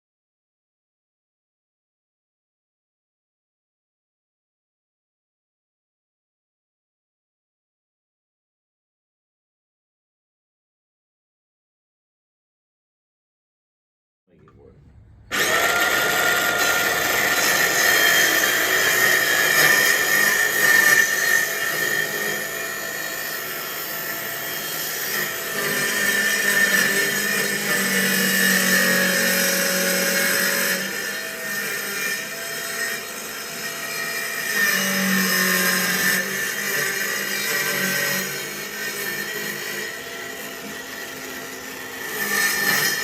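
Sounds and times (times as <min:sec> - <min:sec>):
power tool whining: 0:15.3 - 0:43.0.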